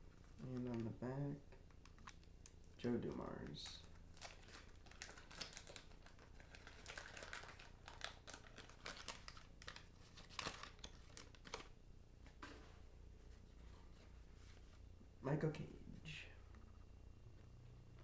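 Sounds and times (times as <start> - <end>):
wrapper crinkling: 1.7 - 11.7
cards clicking and rustling: 3.0 - 11.7.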